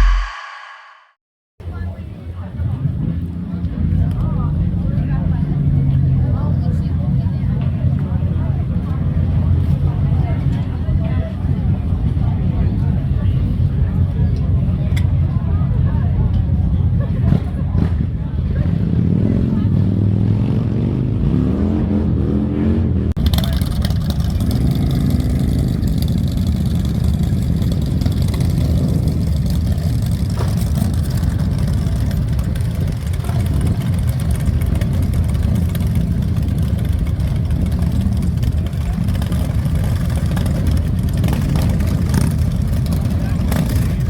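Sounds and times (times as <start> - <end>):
motorcycle engines revving: 17.8 - 44.0.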